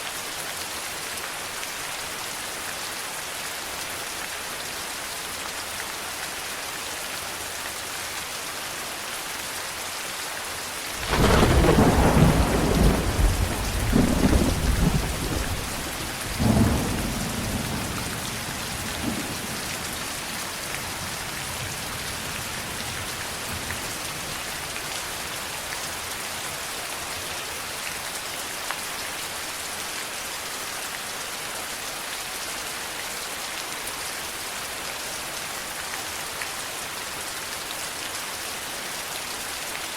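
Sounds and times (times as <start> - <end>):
rain falling: 0.0 - 39.9
thunder rumbling: 11.0 - 24.4.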